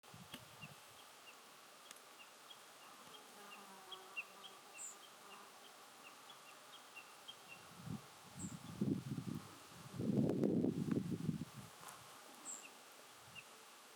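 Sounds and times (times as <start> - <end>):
thin very high calls: 0.4 - 7.8, 12.4 - 13.6.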